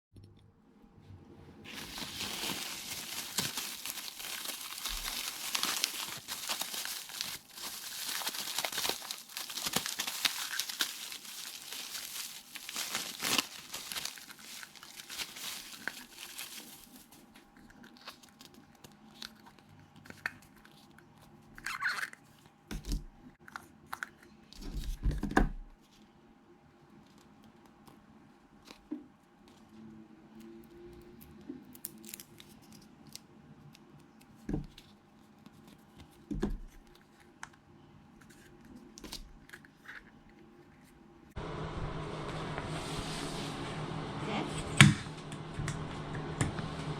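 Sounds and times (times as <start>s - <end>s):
plastic packaging crinkling: 1.7s - 20.9s, 31.7s - 33.2s.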